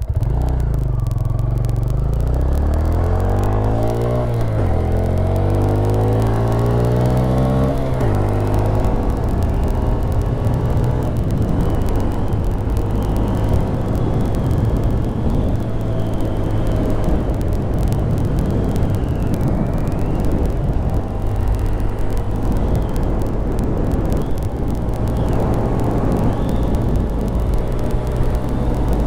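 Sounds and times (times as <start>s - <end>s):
small motorcycle engine cruising: 0.0s - 29.0s
wind rushing over microphone: 0.0s - 29.0s.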